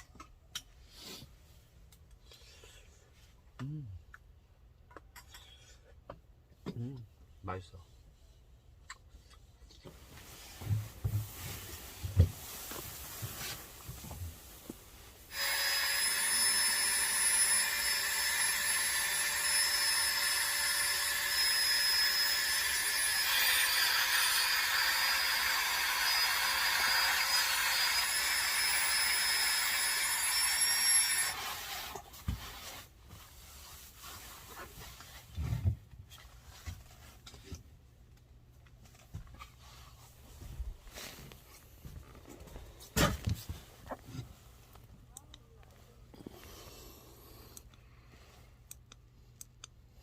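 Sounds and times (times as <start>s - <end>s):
electric motor whirring: 15.3s - 32.0s.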